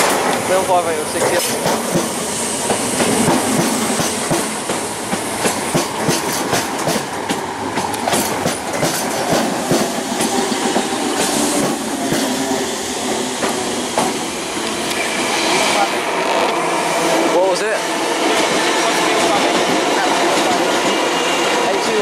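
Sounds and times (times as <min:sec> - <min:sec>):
wheels clacking over rail joints: 0:00.0 - 0:12.4
train wheels rumbling on rails: 0:00.0 - 0:22.0.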